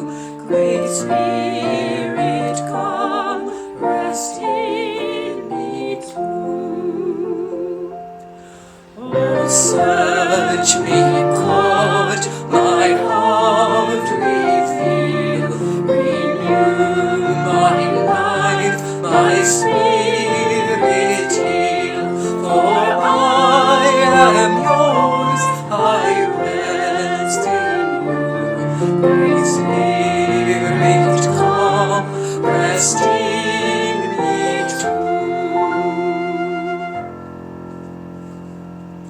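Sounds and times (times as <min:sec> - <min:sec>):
woman singing a hymn: 0:00.0 - 0:08.2, 0:09.0 - 0:37.0
sustained instrumental accompaniment: 0:08.0 - 0:39.0.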